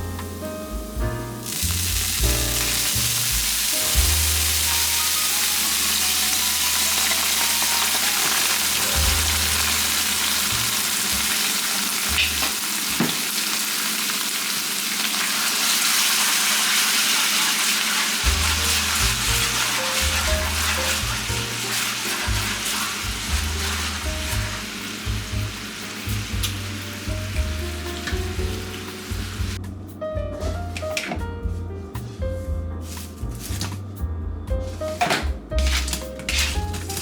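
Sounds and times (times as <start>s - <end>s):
soft background music: 0.0s - 12.4s, 18.2s - 37.0s
food sizzling in a pan: 1.4s - 29.6s.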